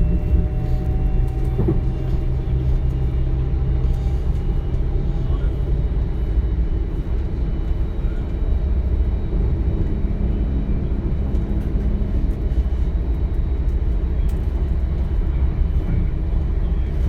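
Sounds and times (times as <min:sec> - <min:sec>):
train wheels rumbling: 0:00.0 - 0:07.3.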